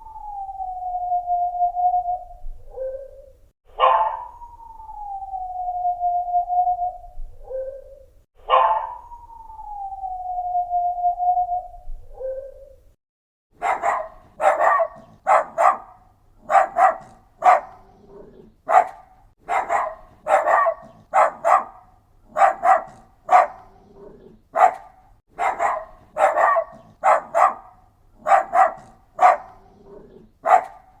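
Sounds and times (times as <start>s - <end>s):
dog barking: 3.7s - 4.4s, 8.4s - 9.1s, 13.6s - 31.0s.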